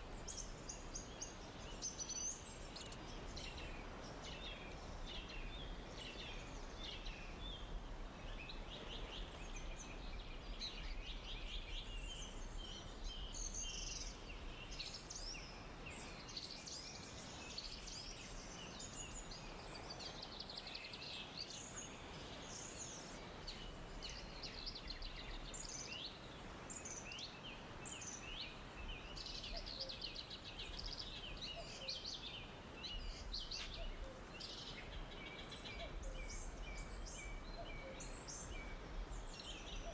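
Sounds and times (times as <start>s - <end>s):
soft steady hiss: 0.0s - 39.9s
songbirds chirping and trilling: 0.0s - 39.9s.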